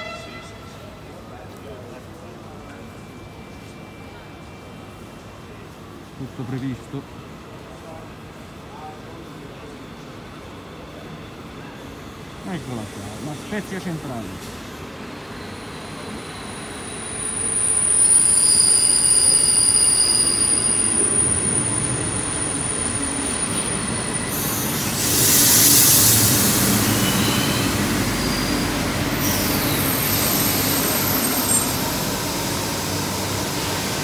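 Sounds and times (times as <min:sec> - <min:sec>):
train wheel squeal: 0:14.4 - 0:33.9
loud rushing hiss: 0:23.8 - 0:34.0.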